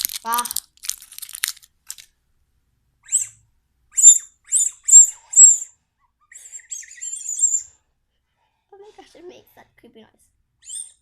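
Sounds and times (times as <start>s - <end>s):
high-pitched whistle toots: 3.0s - 5.8s
wavering whistle: 3.0s - 7.8s.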